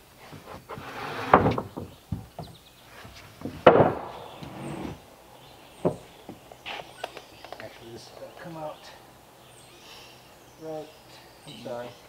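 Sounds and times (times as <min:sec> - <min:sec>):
wooden boards clunking: 0:00.2 - 0:05.1, 0:05.7 - 0:07.7.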